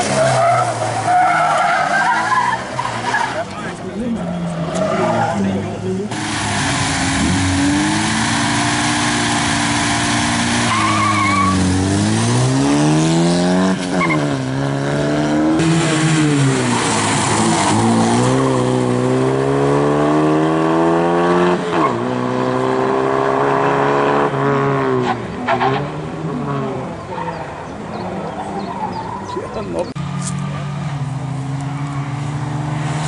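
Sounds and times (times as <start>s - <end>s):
car engine revving hard: 6.1s - 25.8s
tyre squeal: 10.7s - 11.7s.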